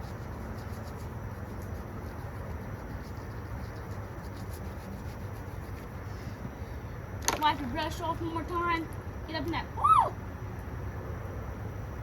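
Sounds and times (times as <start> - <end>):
brush scrubbing: 0.0 - 6.2
steady low rumble: 0.0 - 12.0.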